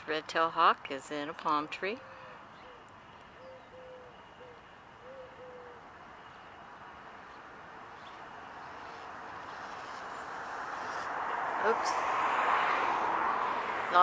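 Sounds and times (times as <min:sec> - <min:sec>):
bird soft low hooting: 0:02.0 - 0:06.6.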